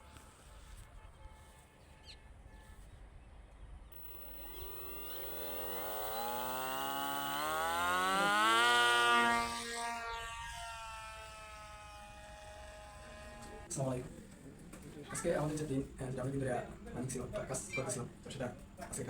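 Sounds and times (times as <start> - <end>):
electric motor propeller whine: 4.0 - 13.7.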